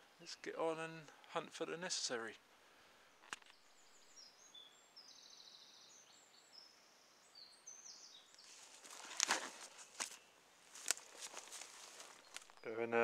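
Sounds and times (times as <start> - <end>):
bird chirping: 3.1 - 13.0
rustling: 8.3 - 12.6.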